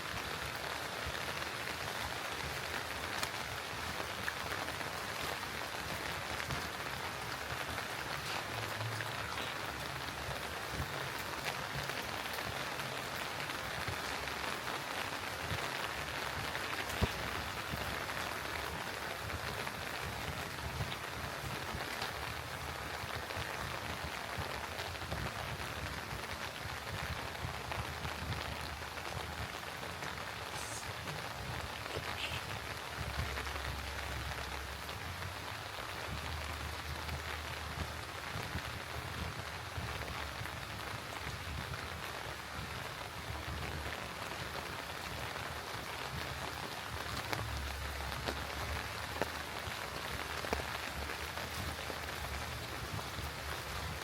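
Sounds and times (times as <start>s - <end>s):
light rain pattering: 0.0s - 54.0s.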